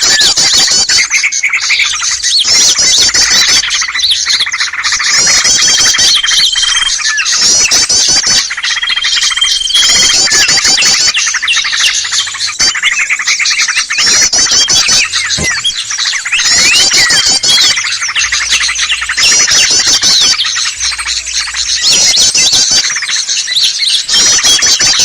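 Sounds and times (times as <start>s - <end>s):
songbirds chirping and squawking: 0.0s - 25.0s
high thin bird trill: 9.2s - 23.1s.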